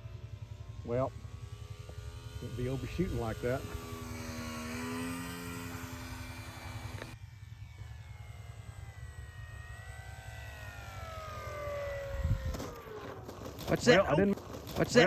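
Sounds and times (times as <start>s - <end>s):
model plane motor whining: 0.0s - 15.0s
wind rumble on microphone: 12.0s - 13.6s.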